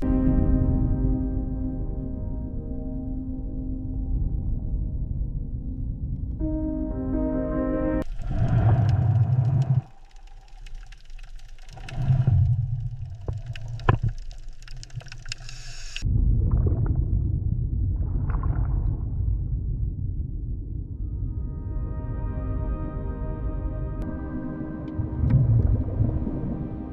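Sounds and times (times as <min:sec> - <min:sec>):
scattered clicks: 0:08.0 - 0:16.0
low underwater rumbling: 0:08.0 - 0:21.9, 0:23.0 - 0:26.9.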